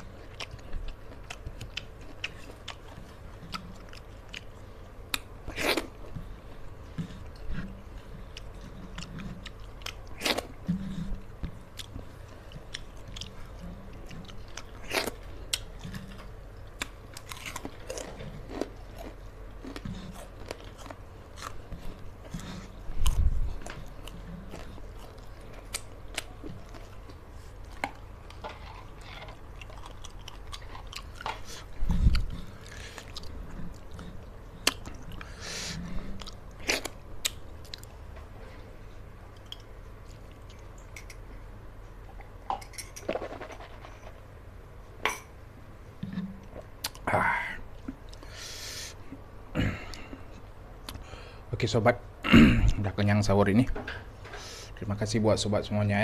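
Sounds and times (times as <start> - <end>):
person chewing and crunching: 0.0 - 38.0, 39.3 - 41.0, 46.0 - 47.1.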